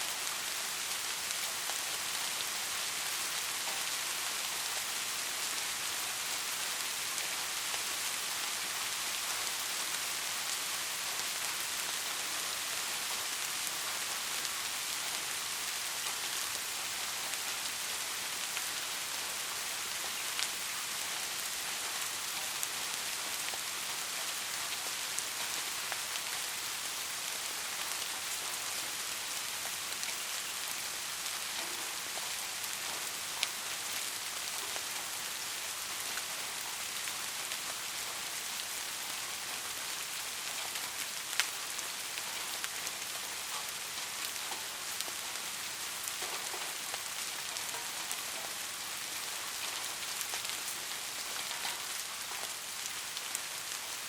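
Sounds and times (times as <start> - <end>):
steady rain hiss: 0.0 - 54.0
raindrops ticking: 40.4 - 54.0.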